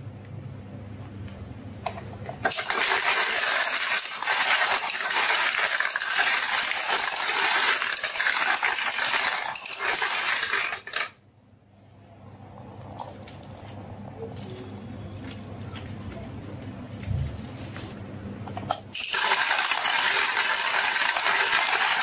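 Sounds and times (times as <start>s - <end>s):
marbles clattering down a marble run: 2.4s - 11.2s, 18.9s - 22.0s.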